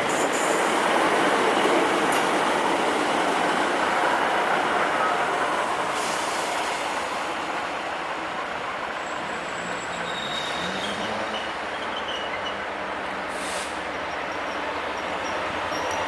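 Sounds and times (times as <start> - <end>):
train wheels rumbling: 0.0 - 16.0
faint wheel squeals on rails: 8.4 - 12.7, 13.3 - 16.0.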